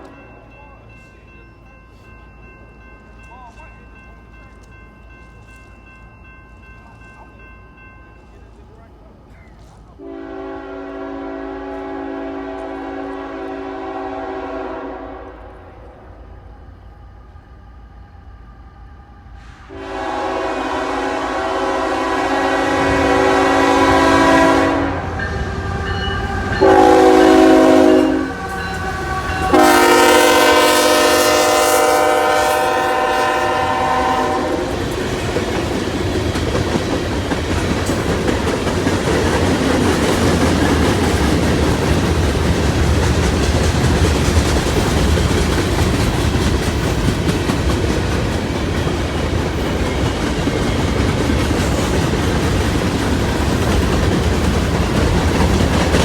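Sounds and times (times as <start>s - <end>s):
train horn blasts: 10.0s - 16.2s, 19.4s - 35.0s
train cars rumbling and clattering: 19.7s - 56.0s.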